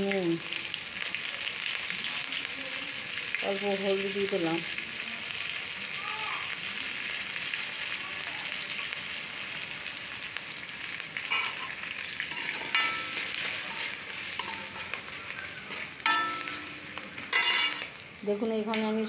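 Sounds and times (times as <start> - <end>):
food sizzling in hot oil: 0.0 - 19.0
ladle scraping pan: 11.3 - 11.7, 12.3 - 18.0.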